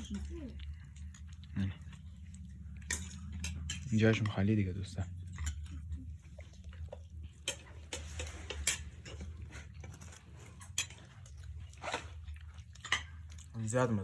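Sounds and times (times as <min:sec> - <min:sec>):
steady low hum: 0:00.0 - 0:14.0
cutlery and dishes clinking: 0:02.7 - 0:05.9, 0:06.9 - 0:13.6.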